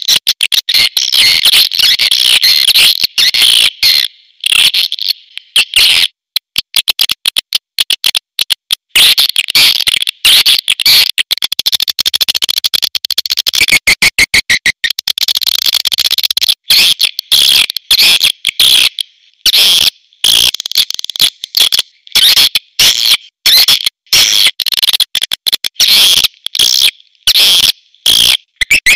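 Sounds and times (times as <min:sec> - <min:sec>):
swiftlet clicks and chirps: 0:11.1 - 0:18.6.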